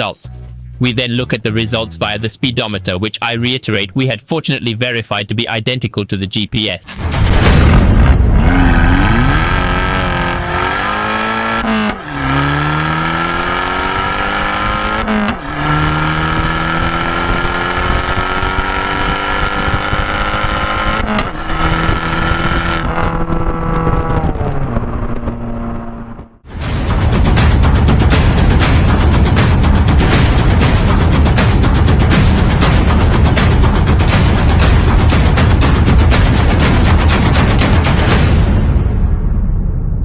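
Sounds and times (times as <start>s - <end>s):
car engine accelerating: 7.7s - 26.5s.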